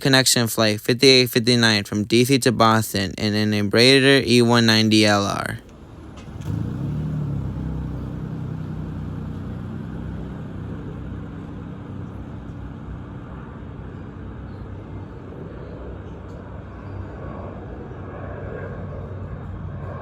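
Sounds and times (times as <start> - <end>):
jet engine rumble: 0.0 - 20.0.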